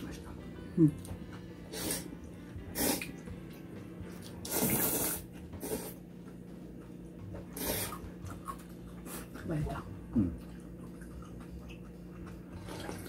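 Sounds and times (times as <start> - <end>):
people slurping noodles: 1.7 - 2.1, 2.7 - 3.1, 4.4 - 6.0, 7.5 - 9.4.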